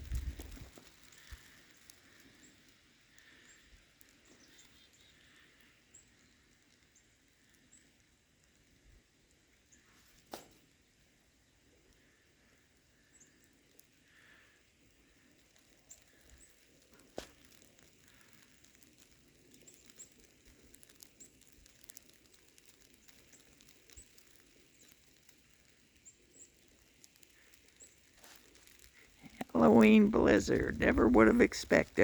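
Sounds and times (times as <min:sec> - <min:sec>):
faint ticks: 0:00.0 - 0:08.6, 0:11.7 - 0:29.5.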